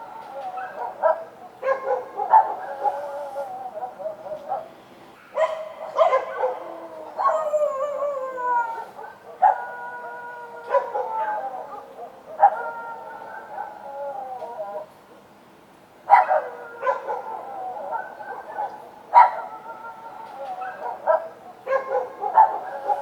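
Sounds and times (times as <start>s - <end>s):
dogs barking and howling: 0.0s - 15.2s, 16.0s - 23.0s.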